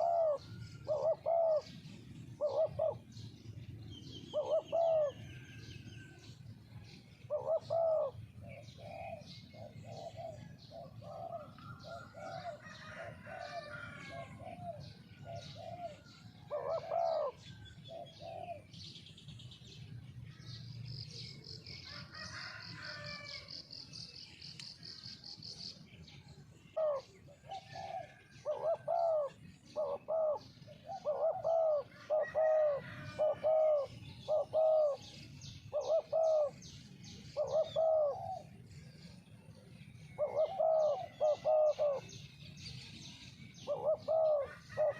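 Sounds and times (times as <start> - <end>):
doves cooing: 0.0 - 6.2, 6.9 - 18.8, 26.1 - 42.3, 43.6 - 44.9.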